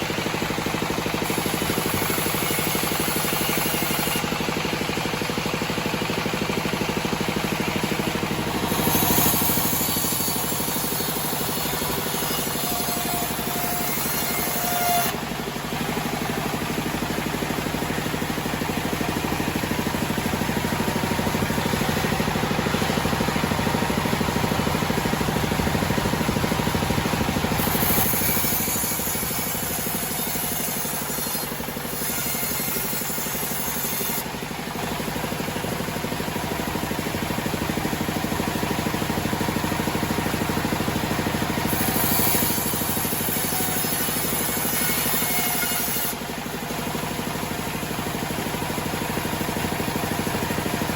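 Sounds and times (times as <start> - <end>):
band sawmill droning: 0.0 - 50.9
saw blade cutting hiss: 8.1 - 15.3, 25.9 - 34.3, 41.7 - 46.2.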